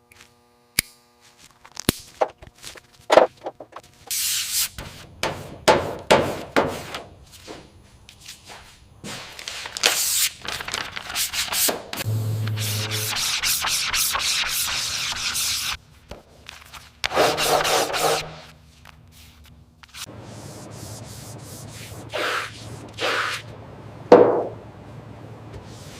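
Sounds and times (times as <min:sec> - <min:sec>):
low steady hum: 0:12.0 - 0:14.2, 0:18.6 - 0:25.9
sanding rasping on car bodywork: 0:12.5 - 0:15.8, 0:17.1 - 0:18.5.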